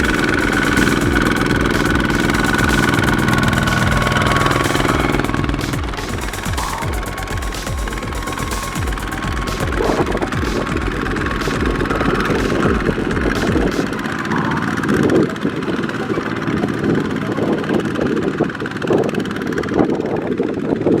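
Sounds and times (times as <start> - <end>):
small tractor engine running: 0.0 - 21.0.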